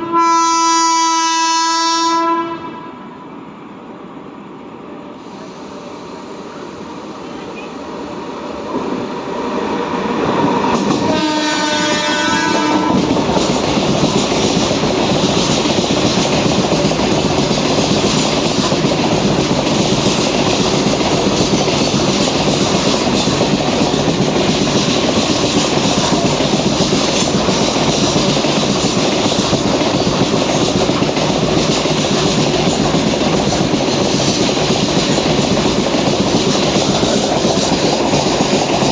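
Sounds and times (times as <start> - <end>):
locomotive horn: 0.0 - 3.2, 11.0 - 13.1
train wagons clattering over rails: 10.2 - 38.9.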